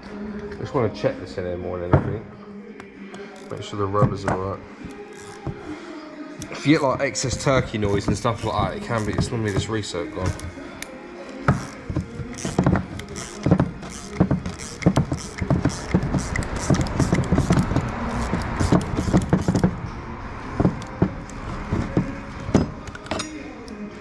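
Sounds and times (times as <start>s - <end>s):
ratchet and tools clicking: 3.3s - 3.6s, 4.8s - 5.7s, 7.8s - 10.5s, 11.5s - 19.8s.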